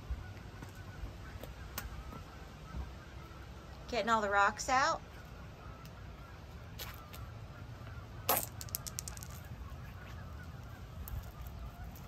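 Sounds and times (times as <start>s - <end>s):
geese honking: 0.0s - 12.0s
rocks knocking together: 8.3s - 9.4s
small rock clicks: 8.3s - 9.4s.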